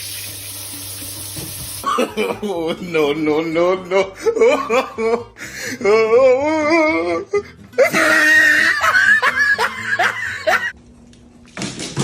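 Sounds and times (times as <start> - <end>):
laughter: 1.8 - 5.3, 7.8 - 10.8.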